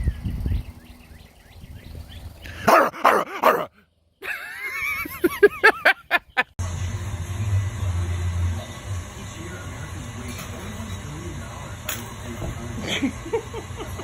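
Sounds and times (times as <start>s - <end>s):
dog barking: 2.6s - 3.7s.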